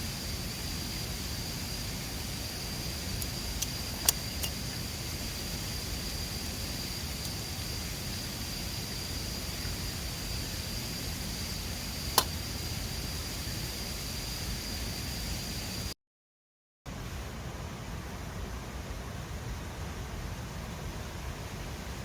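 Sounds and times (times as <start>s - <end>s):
campfire pop: 12.1s - 12.5s.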